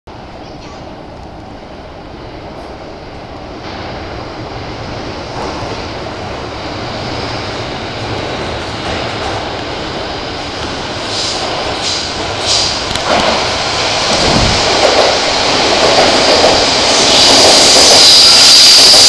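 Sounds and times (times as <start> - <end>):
electric train rumbling: 0.1 - 19.0
short high screeches: 17.6 - 19.0.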